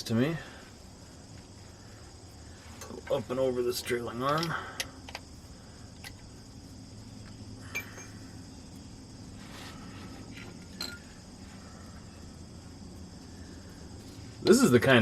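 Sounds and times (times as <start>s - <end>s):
crickets chirping: 0.0s - 15.0s
hand tools clinking: 3.8s - 5.3s, 7.6s - 8.3s, 10.4s - 11.2s.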